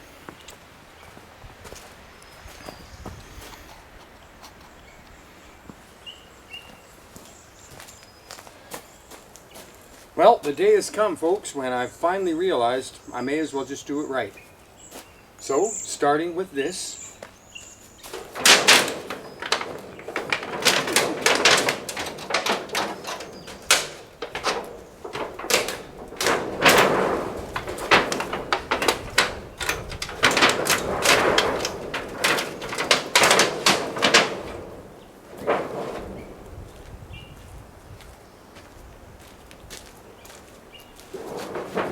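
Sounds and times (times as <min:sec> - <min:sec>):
hard materials knocking and clattering: 0:17.9 - 0:36.9, 0:41.0 - 0:41.9.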